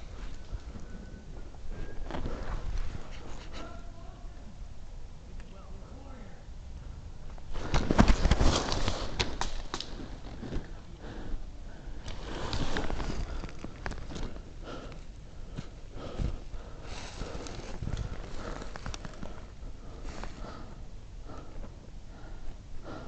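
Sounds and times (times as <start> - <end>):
clothing and gear rustling: 12.1 - 14.4, 16.2 - 19.5.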